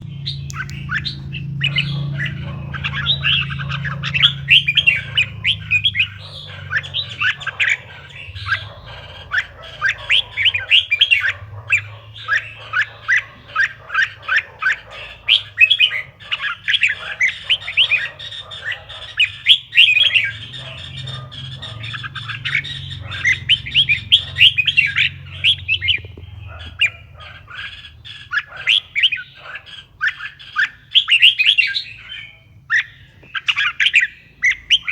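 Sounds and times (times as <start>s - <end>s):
faint low hum: 0.0s - 19.5s
bird chirping and warbling: 0.0s - 34.9s.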